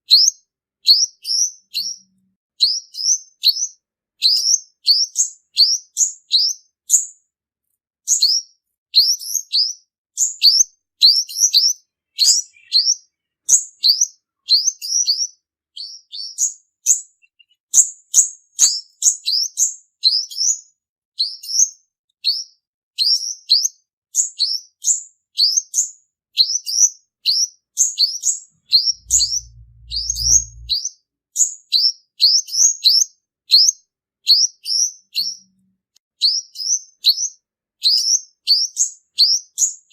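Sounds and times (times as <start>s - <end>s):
bird singing high thin chirps: 0.1s - 7.1s, 8.1s - 20.6s, 21.2s - 30.9s.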